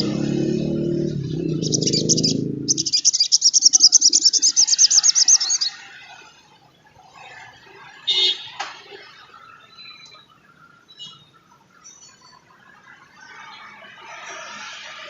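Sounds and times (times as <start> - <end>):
low hum: 0.0 - 3.1
bird chattering and trilling: 0.0 - 5.9.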